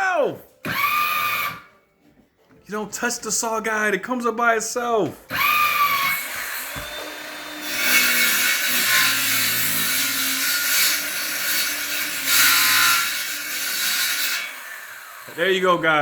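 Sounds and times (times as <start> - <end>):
circular saw cutting wood: 0.6 - 1.7, 5.3 - 16.0.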